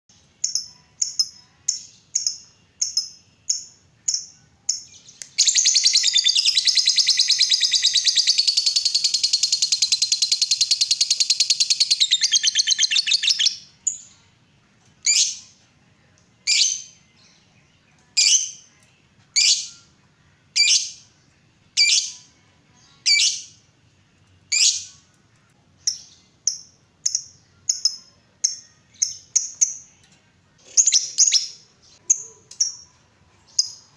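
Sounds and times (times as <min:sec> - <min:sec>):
lovebird chirping and trilling: 0:00.4 - 0:14.1, 0:23.0 - 0:23.6, 0:30.7 - 0:33.9.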